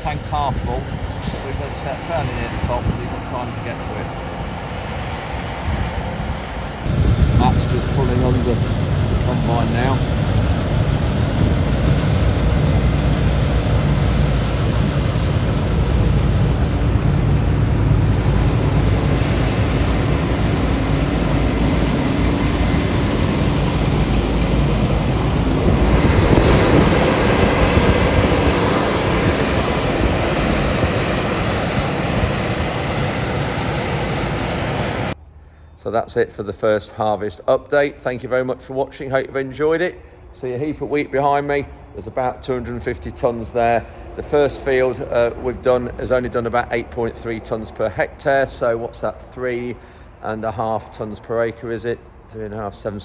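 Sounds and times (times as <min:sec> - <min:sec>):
combine harvester engine drone: 0:00.0 - 0:35.2.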